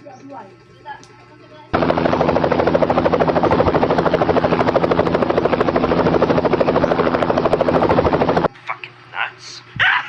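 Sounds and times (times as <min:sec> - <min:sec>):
loud throbbing drone: 0:01.8 - 0:08.5.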